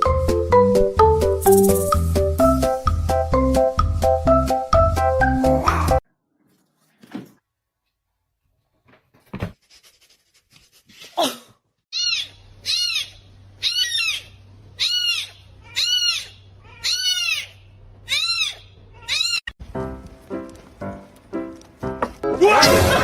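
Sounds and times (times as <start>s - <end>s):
kitten meowing: 12.0s - 19.5s.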